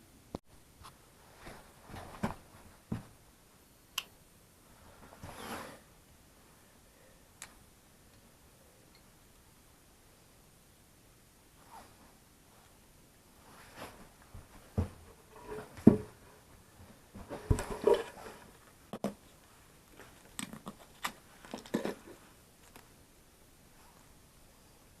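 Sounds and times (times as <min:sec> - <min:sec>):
wood being handled: 0:13.8 - 0:19.2.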